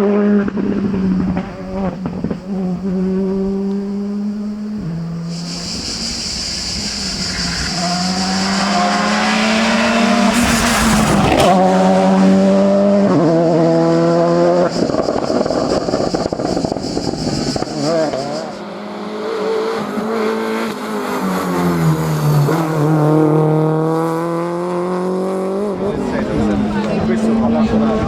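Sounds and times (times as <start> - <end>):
rally car engine at high revs: 0.0 - 28.0
cicadas buzzing: 2.3 - 11.4.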